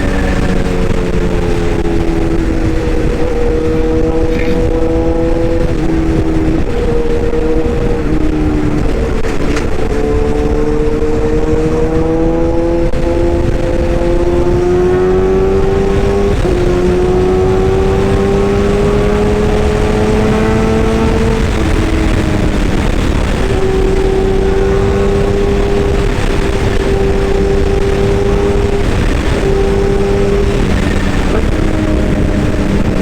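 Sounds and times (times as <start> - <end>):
excavator running: 0.0 - 33.0.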